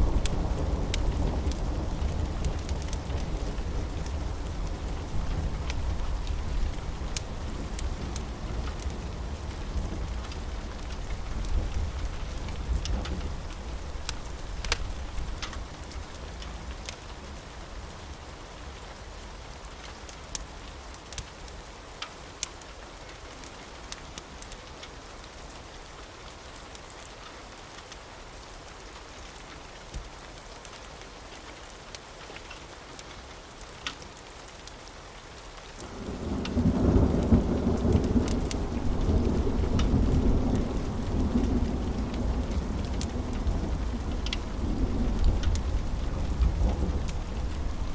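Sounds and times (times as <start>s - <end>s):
thunder rumbling: 0.0s - 15.9s, 35.9s - 47.9s
rain hissing: 0.0s - 47.9s.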